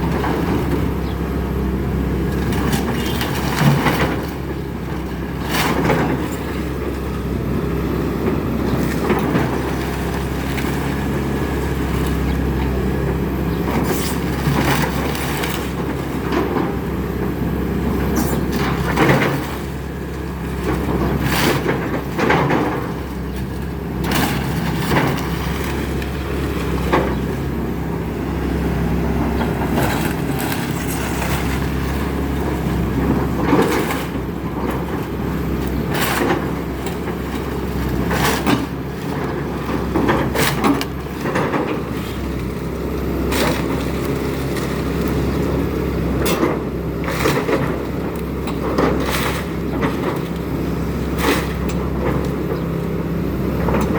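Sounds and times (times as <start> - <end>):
excavator diesel engine: 0.0 - 53.9
building cracking and crunching: 20.5 - 45.5.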